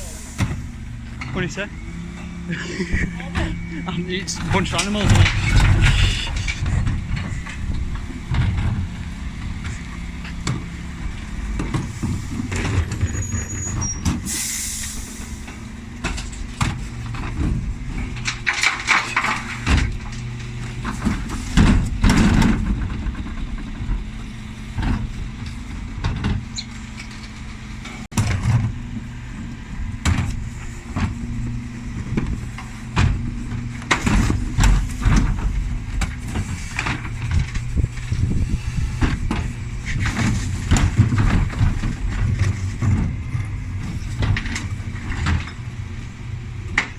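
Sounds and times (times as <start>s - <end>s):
air brake hiss: 0.0s - 0.4s, 14.2s - 15.4s
diesel engine running: 0.0s - 46.9s
bins knocking and clattering: 2.7s - 14.3s, 16.0s - 28.8s, 30.0s - 45.7s.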